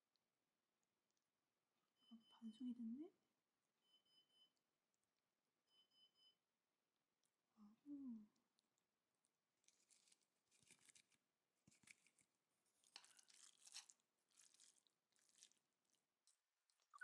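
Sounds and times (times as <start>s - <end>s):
chewing noodles: 8.4s - 17.0s.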